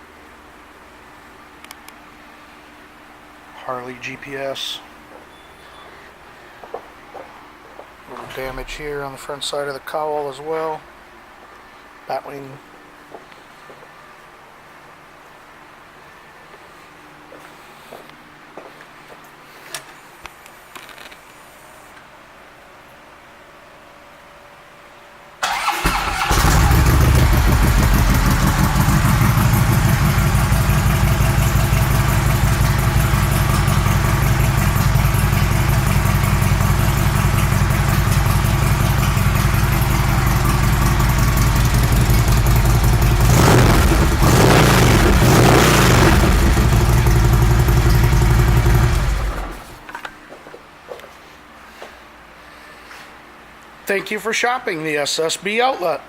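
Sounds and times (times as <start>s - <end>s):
motorcycle engine idling: 25.5s - 49.8s
motorcycle engine revving: 25.5s - 49.8s.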